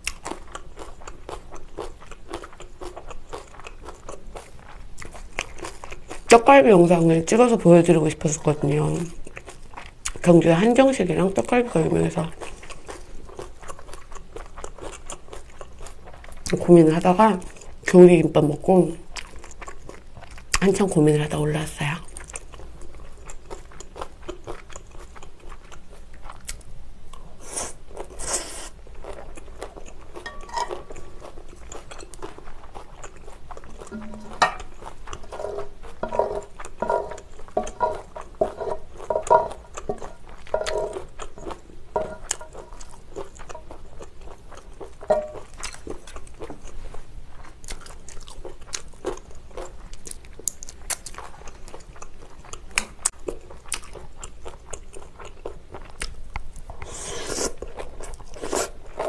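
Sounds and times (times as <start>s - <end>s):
chewing and crunching noodles: 0.0s - 20.8s, 21.8s - 59.0s
chopsticks scraping a grill pan: 30.2s - 32.2s, 33.8s - 42.8s.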